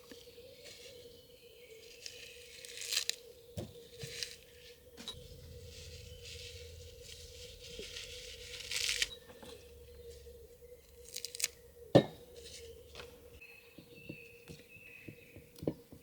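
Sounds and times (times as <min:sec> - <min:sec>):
faint steady hum: 0:04.8 - 0:13.4.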